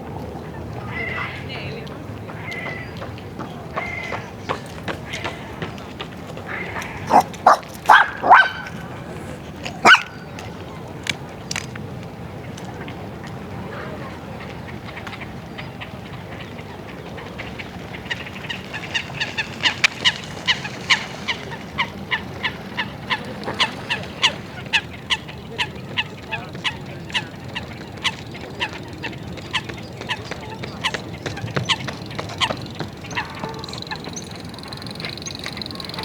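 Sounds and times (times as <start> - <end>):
low hum of park ambience: 0.0 - 36.0
geese honking: 6.8 - 10.1.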